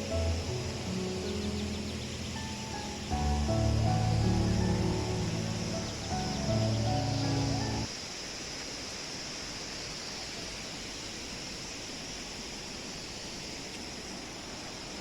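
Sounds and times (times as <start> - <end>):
background music: 0.0 - 7.9
river water rushing: 0.0 - 15.0.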